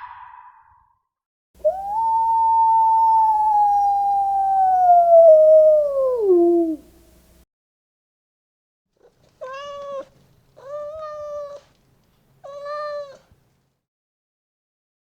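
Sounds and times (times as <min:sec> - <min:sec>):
cat meowing: 0:09.0 - 0:11.8, 0:12.4 - 0:13.3.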